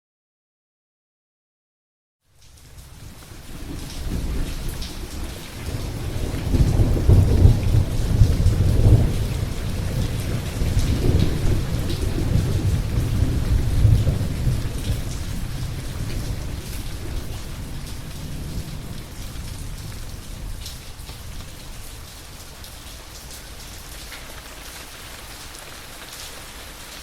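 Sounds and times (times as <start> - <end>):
steady rain: 2.2 - 27.0
rolling thunder: 3.6 - 22.7.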